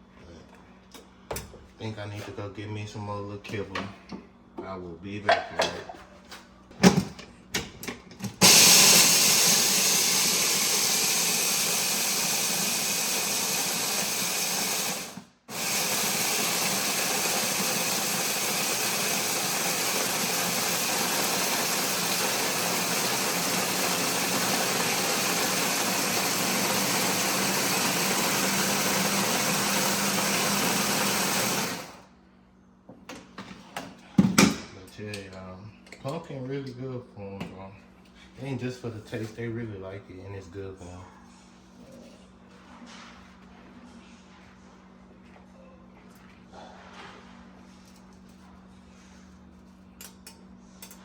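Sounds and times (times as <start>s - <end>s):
electric blender motor running: 8.4s - 32.1s.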